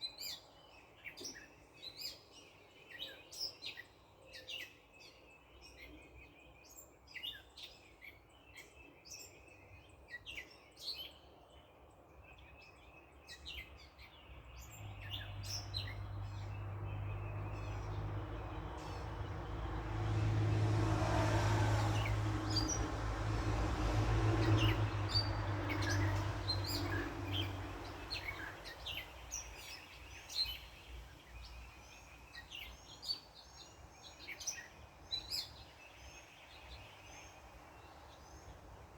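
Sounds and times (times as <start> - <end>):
songbirds chirping: 0.0 - 38.9
car passing on road: 14.5 - 32.7.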